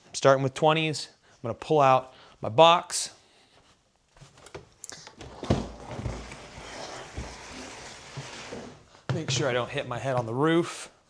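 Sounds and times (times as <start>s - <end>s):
box scraping across floor: 5.2s - 9.0s.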